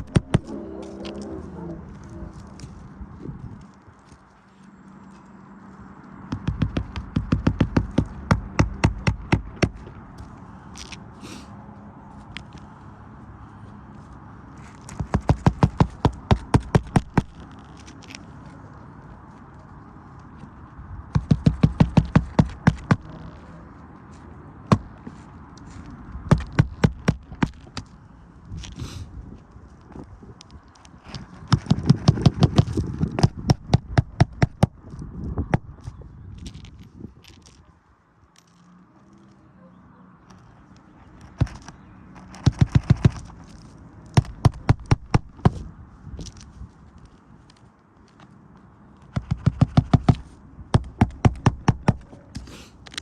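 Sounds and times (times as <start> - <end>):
hammer striking shingle roof: 0.0 - 0.5, 6.3 - 9.8, 15.0 - 17.4, 21.1 - 23.1, 26.3 - 27.8, 31.5 - 34.8, 42.3 - 43.3, 44.1 - 45.6, 49.1 - 52.5.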